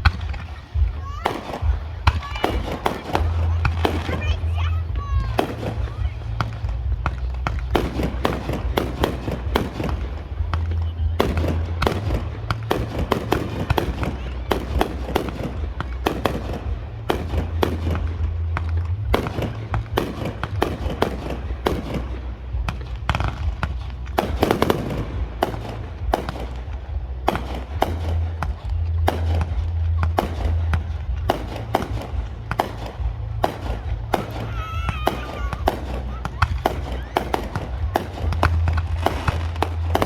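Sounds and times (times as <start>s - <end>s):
fireworks cracks and bangs: 0.0s - 40.0s
low rumble: 0.0s - 40.0s.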